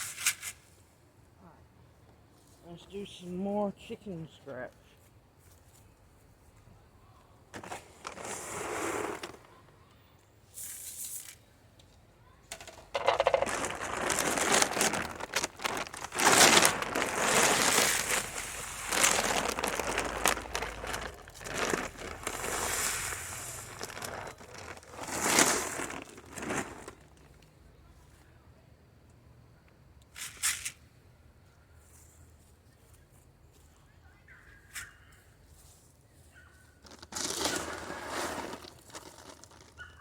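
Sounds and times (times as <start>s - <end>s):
grain rustling and rattling: 7.5s - 9.6s, 12.6s - 27.4s, 36.8s - 39.9s.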